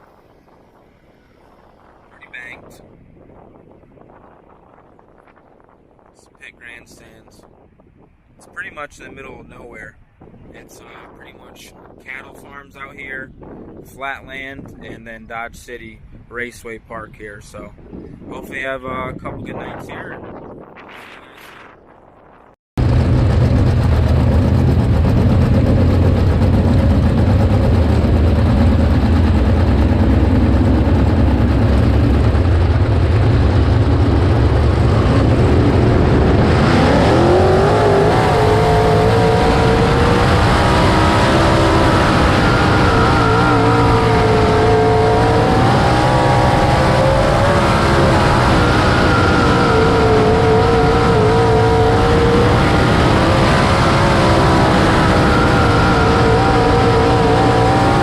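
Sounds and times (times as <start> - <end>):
race car engine rumbling: 22.8 - 58.0.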